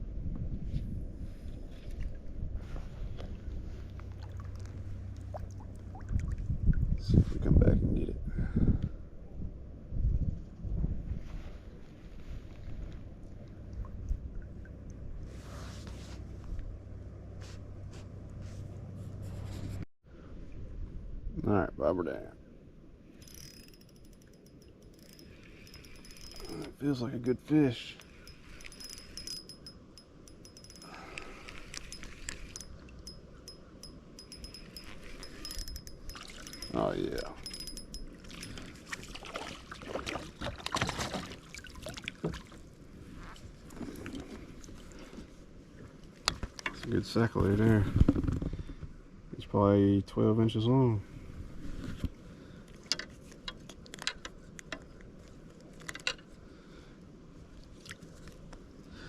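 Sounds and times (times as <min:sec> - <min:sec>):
fishing reel clicking: 0:23.2 - 0:26.7, 0:28.0 - 0:38.1.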